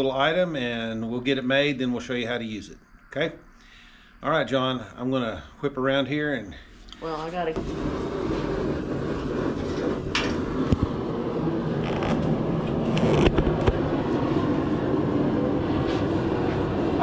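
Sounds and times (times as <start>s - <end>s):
forge running: 7.4s - 17.0s.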